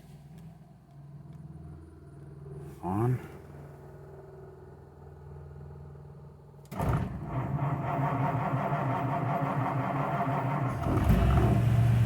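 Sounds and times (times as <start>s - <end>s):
starter cranking car engine: 6.7s - 12.0s.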